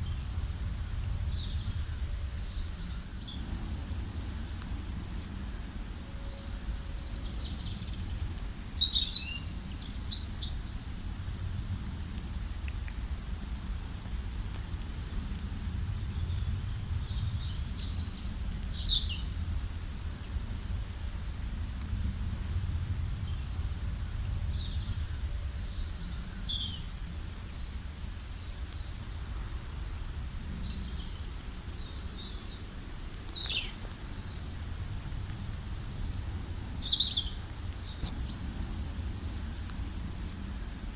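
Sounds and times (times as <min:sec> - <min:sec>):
songbirds chirping and trilling: 0:00.0 - 0:11.1, 0:35.5 - 0:40.9
steady low rumble: 0:00.0 - 0:25.6, 0:32.2 - 0:40.9.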